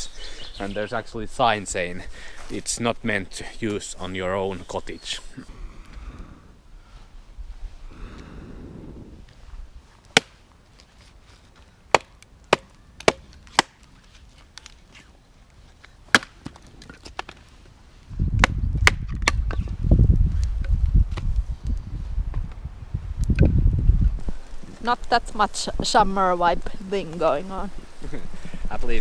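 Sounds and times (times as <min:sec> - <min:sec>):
firewood chopping: 0:10.1 - 0:10.4, 0:11.9 - 0:13.9, 0:16.1 - 0:17.4, 0:18.3 - 0:19.6.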